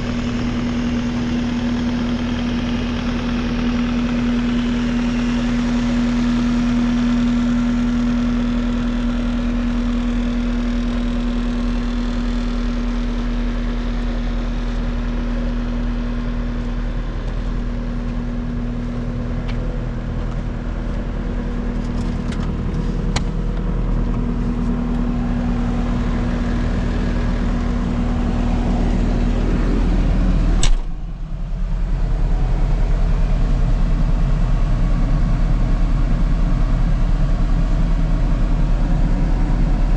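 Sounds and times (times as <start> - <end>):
diesel engine idling: 0.0 - 39.9
sharp click: 30.6 - 31.0.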